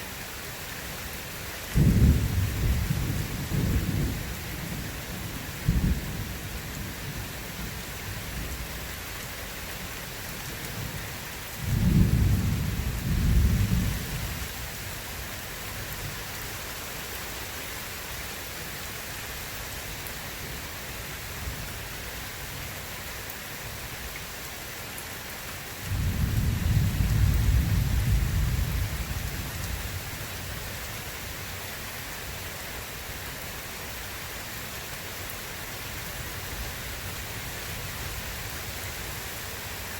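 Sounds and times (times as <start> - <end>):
steady rain falling: 0.0 - 39.9
deep thunder rolls: 1.8 - 4.3, 25.9 - 29.1.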